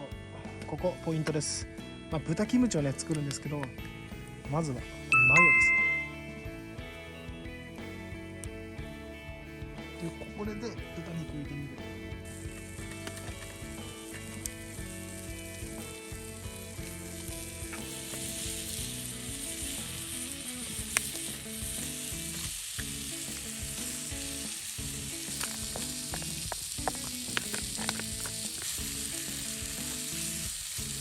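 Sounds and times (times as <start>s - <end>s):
meat sizzling: 11.3s - 31.0s.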